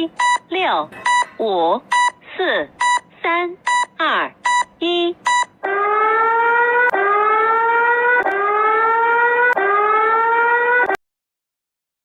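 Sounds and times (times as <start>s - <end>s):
rising siren-like alarm tone: 5.6s - 11.0s.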